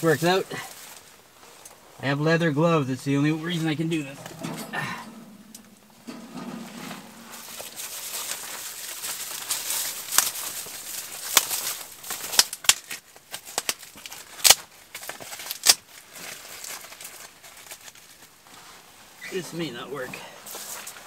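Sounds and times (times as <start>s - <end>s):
fire snapping and popping: 4.2s - 18.0s.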